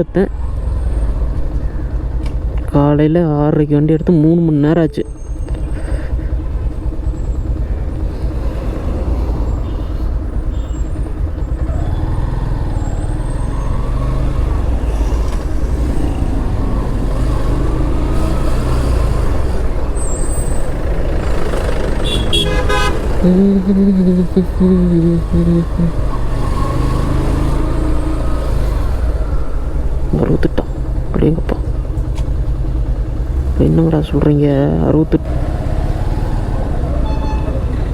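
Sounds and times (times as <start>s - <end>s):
motorcycle engine rumble: 0.0s - 37.9s
vehicle horn honking: 22.0s - 23.4s, 36.9s - 37.9s.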